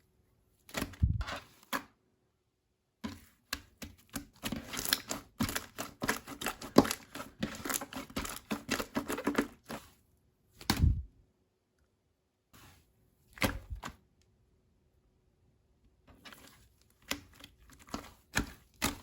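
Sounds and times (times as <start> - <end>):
slime squishing: 3.2 - 10.0, 16.3 - 19.0.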